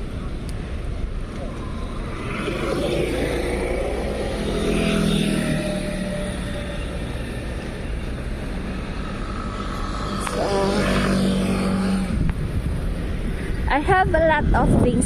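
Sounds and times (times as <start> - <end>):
traffic rumble: 0.0 - 15.0
wind: 0.0 - 15.0
motor vehicle passing: 1.5 - 14.5.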